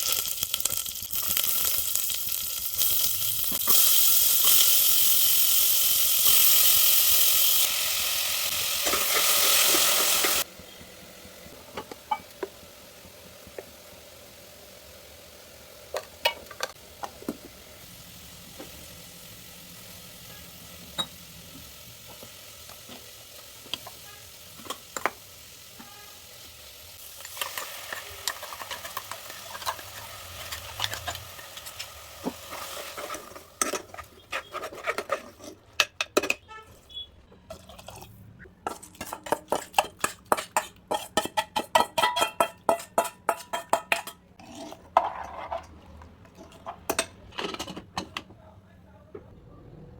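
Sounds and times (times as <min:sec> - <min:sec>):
spoon scraping in a pot: 0:27.3 - 0:37.9, 0:38.6 - 0:45.7
utensils clinking: 0:37.5 - 0:48.3.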